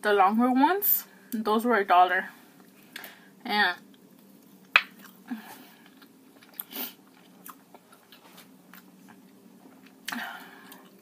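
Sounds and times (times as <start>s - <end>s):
person chewing food: 3.9s - 11.0s.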